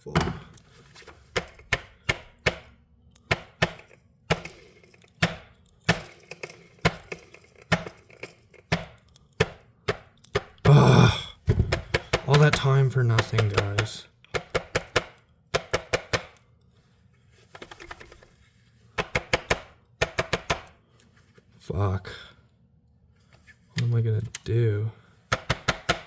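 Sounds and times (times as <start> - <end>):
clicks and knocks of handled parts: 0.0 - 10.7, 11.4 - 21.5
breathy burst: 10.7 - 11.4.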